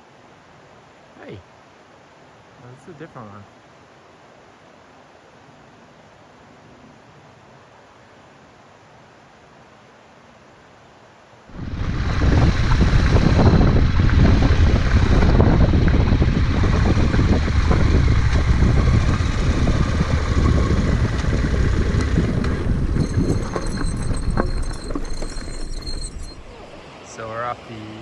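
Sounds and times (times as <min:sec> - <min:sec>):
wind buffeting microphone: 0:11.5 - 0:28.0.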